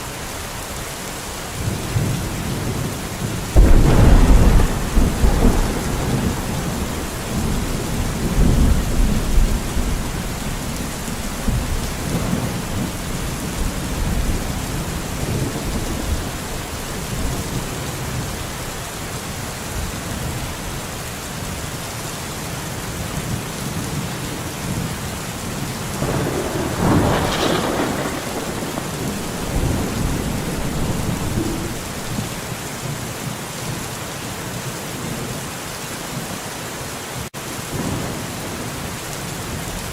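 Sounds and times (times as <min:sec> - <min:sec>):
heavy rain on forest: 0:00.0 - 0:39.9
thunder rumbling: 0:01.6 - 0:18.8, 0:25.8 - 0:32.9.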